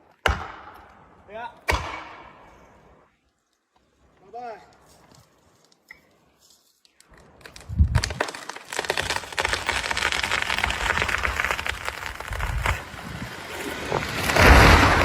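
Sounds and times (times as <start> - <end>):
wood cracking and splintering: 7.0 - 15.0.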